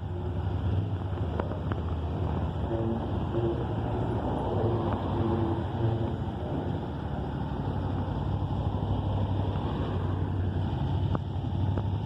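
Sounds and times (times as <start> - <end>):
motorcycle engine humming: 0.0 - 12.0.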